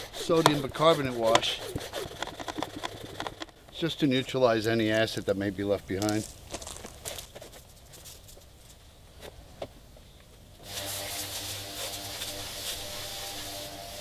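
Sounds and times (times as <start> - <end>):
spray nozzle hissing: 10.6 - 14.0.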